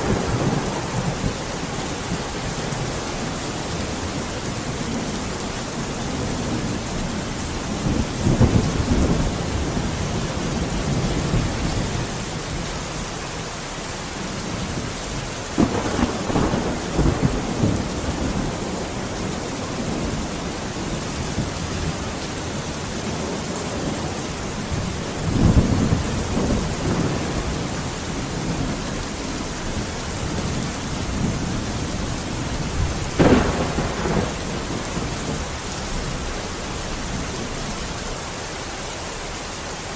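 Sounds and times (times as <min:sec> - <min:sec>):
sharp thunder crack: 0:00.0 - 0:03.4, 0:15.6 - 0:22.0, 0:31.2 - 0:36.1
thunder rolling: 0:00.0 - 0:12.6, 0:15.6 - 0:37.8
steady rain: 0:00.0 - 0:39.9.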